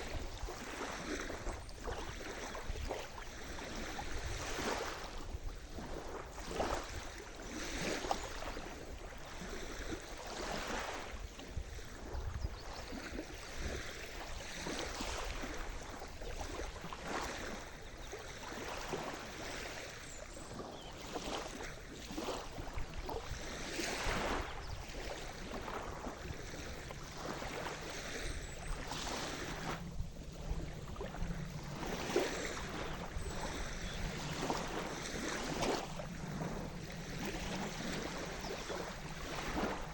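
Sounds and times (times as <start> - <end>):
small waves breaking on shore: 0.0 - 39.9.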